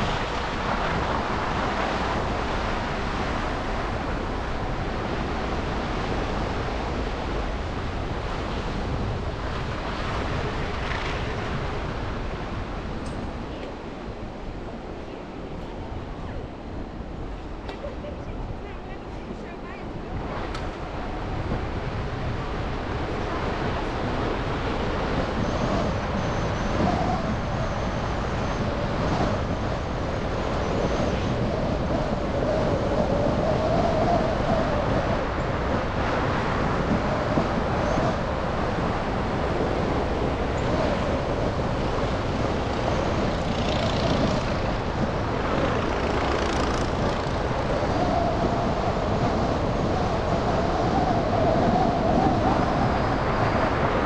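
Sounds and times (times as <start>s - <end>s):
car road and engine noise: 35.4s - 48.3s.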